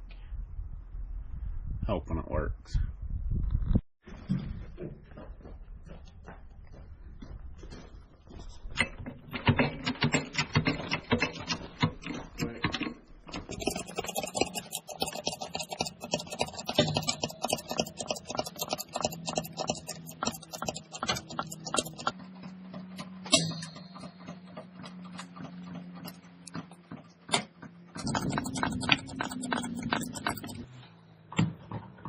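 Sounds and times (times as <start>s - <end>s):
hydraulic jack clicking and clattering: 8.8s - 22.1s.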